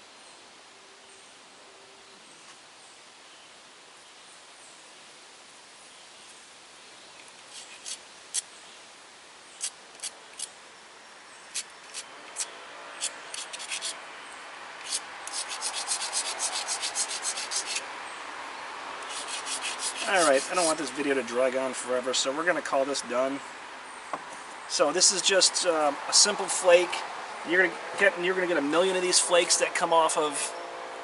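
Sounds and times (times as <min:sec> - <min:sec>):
stone grinding strokes: 0:07.5 - 0:08.4, 0:09.6 - 0:10.5, 0:11.5 - 0:14.0, 0:14.8 - 0:17.8, 0:19.0 - 0:20.9
stone point scraping on abrading stone: 0:07.5 - 0:08.4, 0:09.6 - 0:10.5, 0:11.5 - 0:14.0, 0:14.8 - 0:17.8, 0:19.1 - 0:20.9.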